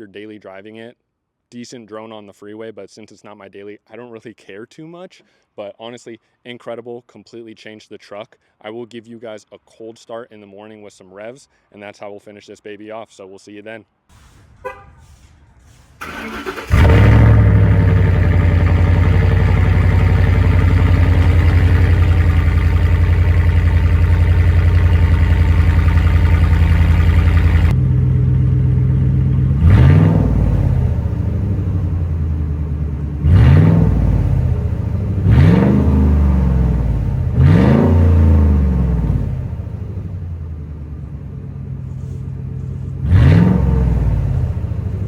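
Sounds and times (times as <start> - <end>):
vehicle engine idling and revving: 14.2 - 45.0.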